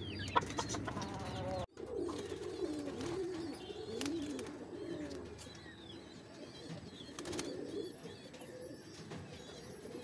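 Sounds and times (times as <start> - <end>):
chicken calls: 0.0 - 3.6.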